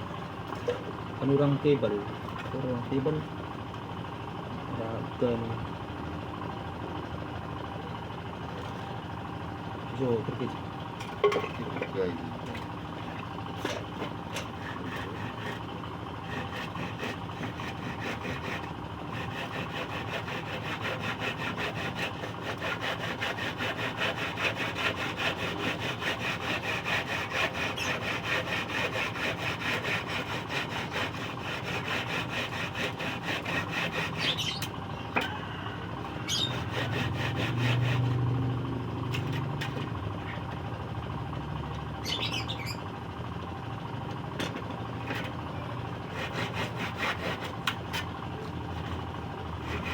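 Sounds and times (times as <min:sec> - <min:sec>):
hand saw cutting wood: 0:13.6 - 0:35.4, 0:36.2 - 0:38.3, 0:45.0 - 0:45.4, 0:46.0 - 0:48.1, 0:49.6 - 0:49.9
low engine hum: 0:37.0 - 0:46.1
bird chirps: 0:42.0 - 0:42.8.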